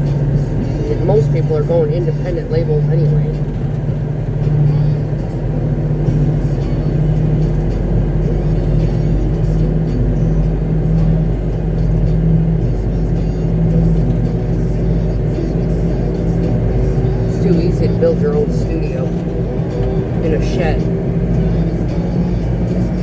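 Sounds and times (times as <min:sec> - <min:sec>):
diesel engine droning: 0:00.0 - 0:23.0
music playing: 0:00.0 - 0:23.0.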